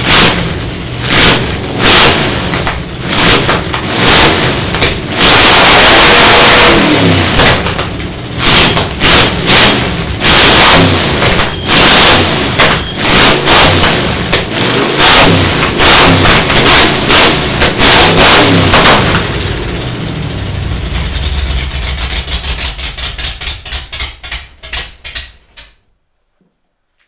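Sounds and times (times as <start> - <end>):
loud car engine revving: 0.0 - 24.9.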